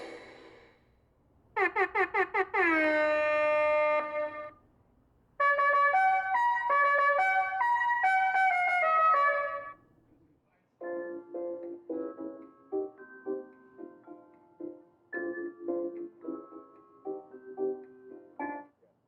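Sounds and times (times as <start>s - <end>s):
brass tune from car speaker: 1.6s - 4.6s, 5.4s - 9.8s.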